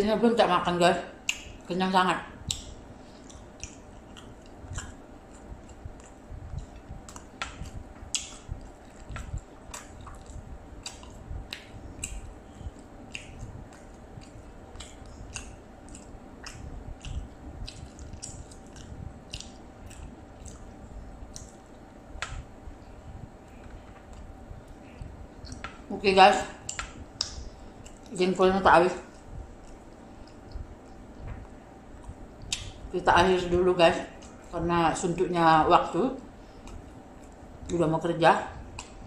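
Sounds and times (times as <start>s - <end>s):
mouth smacks and clicks: 1.2s - 1.7s, 2.4s - 21.6s, 26.6s - 28.2s, 29.1s - 32.8s, 38.7s - 39.0s
wet chewing: 2.4s - 25.9s, 26.6s - 28.2s, 29.0s - 32.8s.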